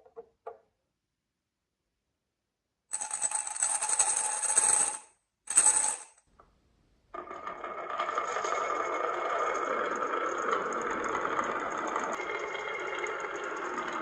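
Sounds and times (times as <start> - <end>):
marbles clattering down a track: 3.0 - 6.2, 7.2 - 14.0
continuous rolling sound: 7.1 - 14.0.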